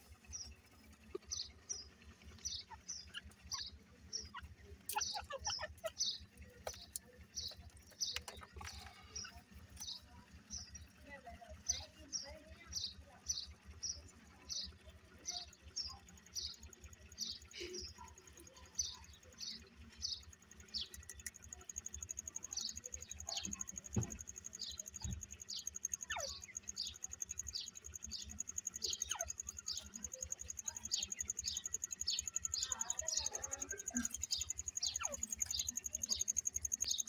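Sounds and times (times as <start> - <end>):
bird chirping: 0.0 - 37.0.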